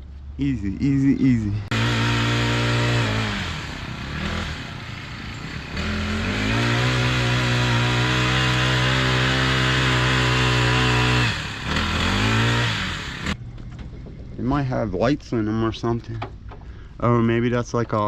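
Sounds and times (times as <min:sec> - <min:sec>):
engine running at high speed: 0:01.7 - 0:13.4.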